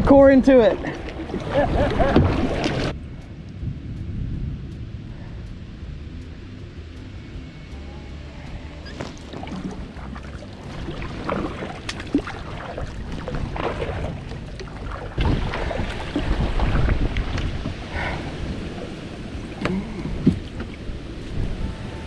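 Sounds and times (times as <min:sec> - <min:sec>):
paddle strokes splashing water: 0:00.0 - 0:03.0, 0:08.8 - 0:22.0
wind rumble on microphone: 0:00.0 - 0:22.0.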